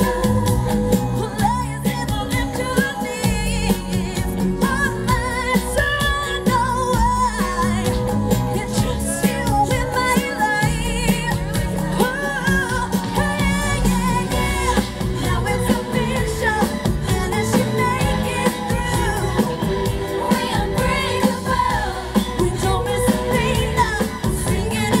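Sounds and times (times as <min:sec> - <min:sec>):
band with steady beat: 0:00.0 - 0:25.0
girl group singing pop song: 0:00.0 - 0:25.0.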